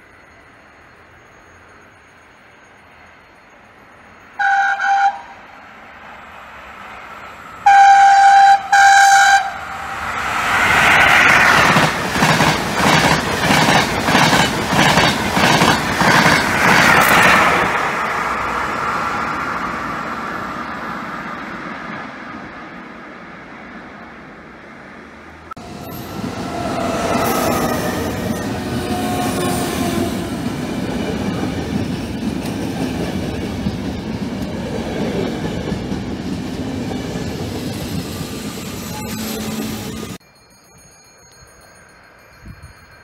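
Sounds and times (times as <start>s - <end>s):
train squealing: 0.0s - 21.0s, 25.5s - 40.2s
train horn blasts: 4.4s - 5.4s, 7.6s - 10.0s, 25.6s - 30.3s, 38.8s - 39.9s
train wheels clicking over joints: 10.8s - 17.8s.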